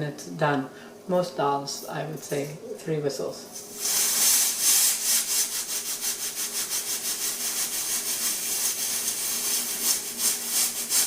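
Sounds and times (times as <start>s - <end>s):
pressure cooker steam hissing: 3.7s - 11.0s.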